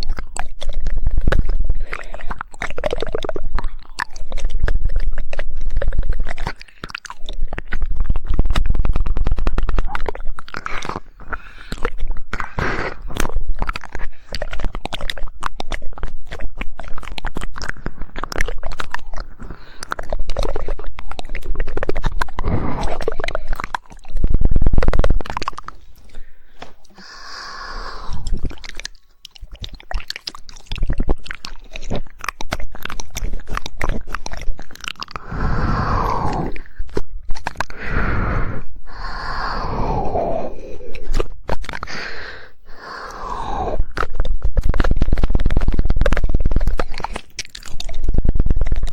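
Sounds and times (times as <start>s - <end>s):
rapid tongue clicking: 0.0s - 48.9s
wet crackly mouth noises: 0.0s - 48.9s
falling wet mouth sweeps: 26.9s - 28.7s, 35.1s - 44.2s.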